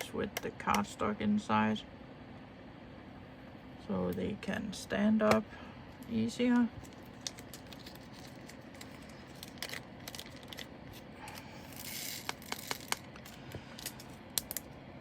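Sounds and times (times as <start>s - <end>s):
plastic bags crinkling: 6.7s - 14.7s.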